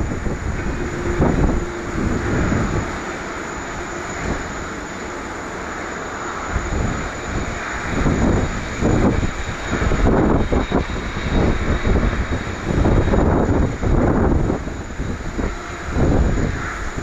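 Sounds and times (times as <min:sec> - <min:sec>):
jet engine whoosh: 0:00.0 - 0:17.0
low rumbling surges: 0:00.0 - 0:17.0.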